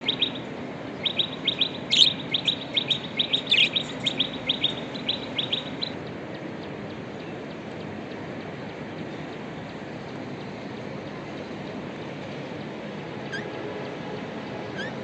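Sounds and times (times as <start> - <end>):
budgerigars chirping: 1.0 - 6.0, 14.7 - 15.0.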